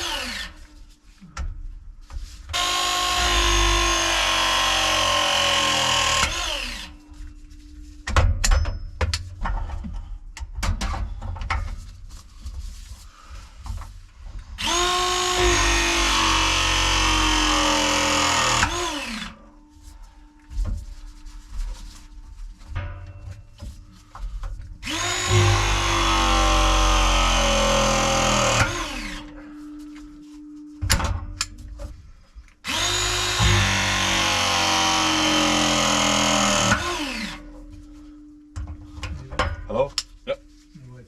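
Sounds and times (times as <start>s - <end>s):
pipe press tool motor whine: 0.0s - 0.7s, 2.6s - 7.0s, 14.6s - 19.4s, 24.8s - 29.3s, 32.6s - 37.5s.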